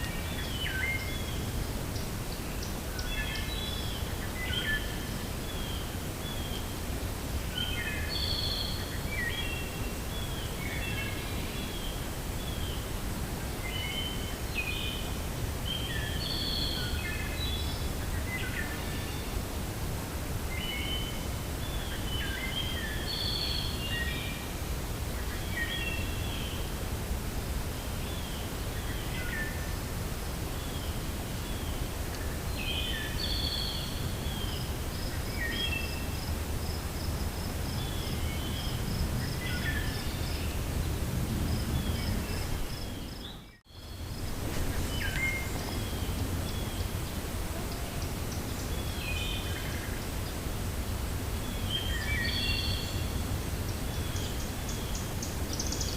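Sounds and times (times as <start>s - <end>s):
wind through forest: 0.0s - 55.9s
birds chirping: 37.7s - 50.5s.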